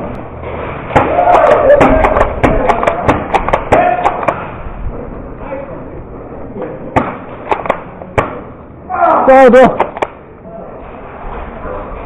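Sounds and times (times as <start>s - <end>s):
airsoft guns firing: 0.9s - 4.6s, 7.0s - 8.5s
players shouting: 0.9s - 4.6s, 8.8s - 9.8s.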